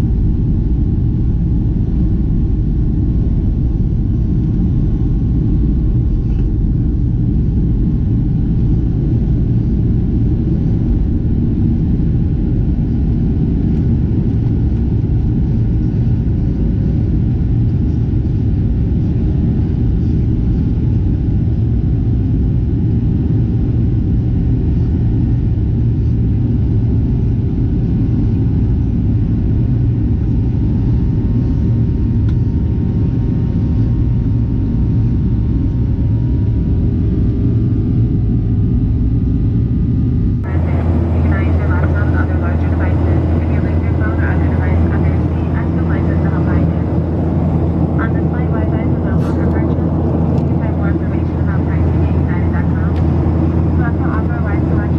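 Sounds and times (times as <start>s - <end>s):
airplane cabin engine rumble: 0.0s - 54.9s
faint steady hum: 39.2s - 54.9s.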